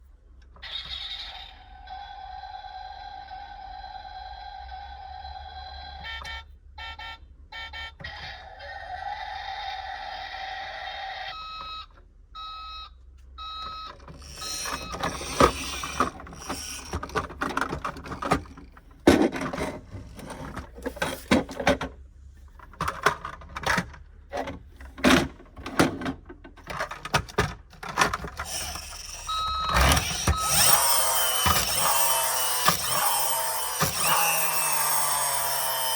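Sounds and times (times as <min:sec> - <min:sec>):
toy reverse-warning beep: 0:00.6 - 0:17.3, 0:28.4 - 0:35.9
plastic toy clicks and knocks: 0:14.1 - 0:21.9, 0:22.6 - 0:35.9.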